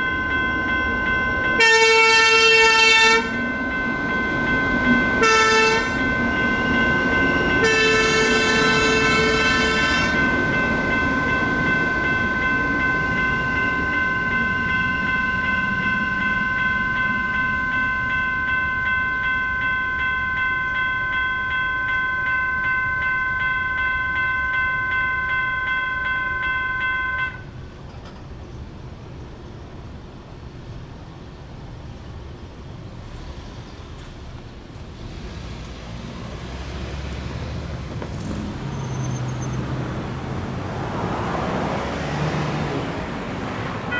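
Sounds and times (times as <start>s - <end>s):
electronic crossing bell ringing: 0.0s - 27.6s
road traffic noise: 0.0s - 43.9s
train rumbling: 0.0s - 43.9s.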